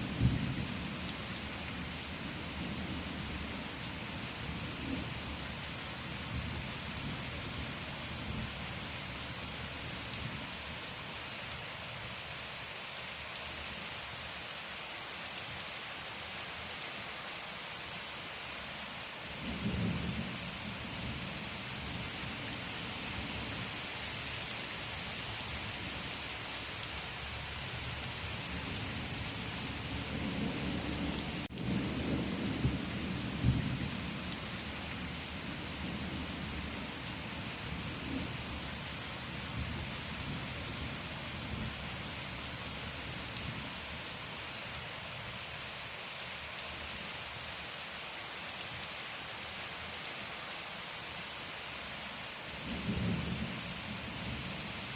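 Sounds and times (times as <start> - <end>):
rain hissing and pattering: 0.0 - 54.9
thunder rumbling: 30.0 - 34.2.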